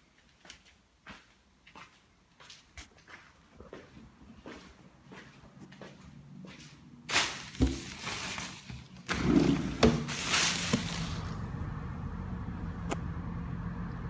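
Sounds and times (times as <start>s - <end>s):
diesel engine rumble: 7.1s - 14.0s.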